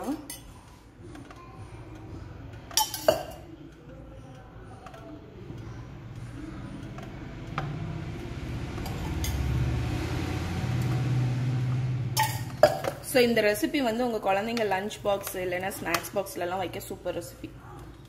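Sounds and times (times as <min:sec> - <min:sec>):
metal cup clinking on plates: 0:02.7 - 0:03.5, 0:12.2 - 0:13.1.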